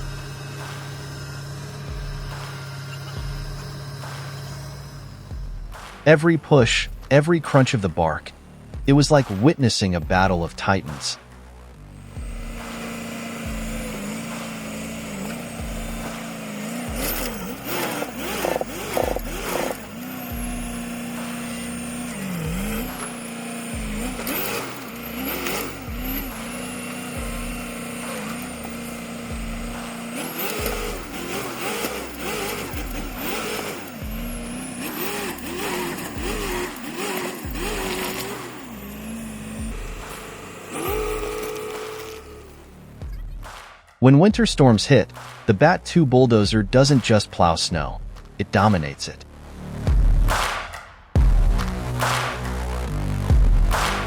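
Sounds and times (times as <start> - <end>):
bursts of clatter: 0.0 - 6.1, 12.0 - 44.0, 50.0 - 54.0
heavy machine engine: 0.0 - 9.5, 11.9 - 43.3
background music with low thump: 0.0 - 54.0.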